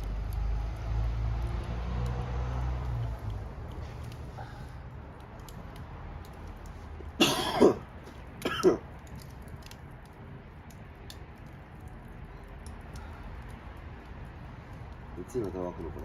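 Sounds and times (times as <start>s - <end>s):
campfire crackling: 0.0s - 16.0s
person coughing: 7.2s - 7.8s, 8.4s - 8.8s.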